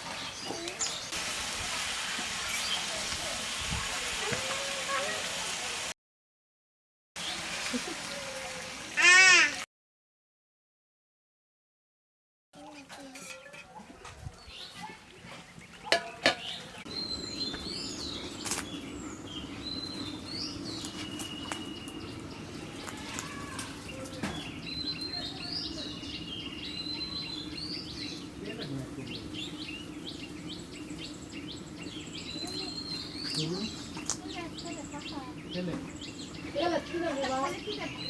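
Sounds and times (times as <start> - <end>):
small birds chirping: 0.0 - 1.2, 12.6 - 38.0.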